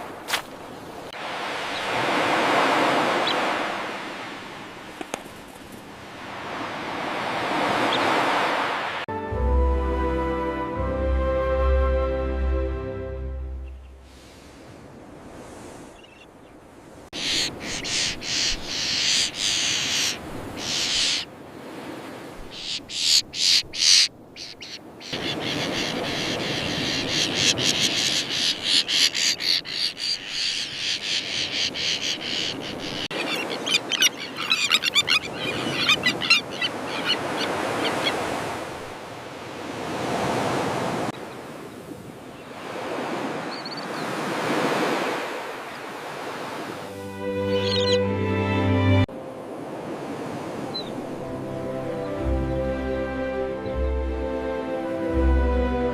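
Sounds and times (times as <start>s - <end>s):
surf: 0.0s - 16.0s
terns calling: 17.1s - 21.3s, 22.4s - 38.6s, 47.3s - 48.1s.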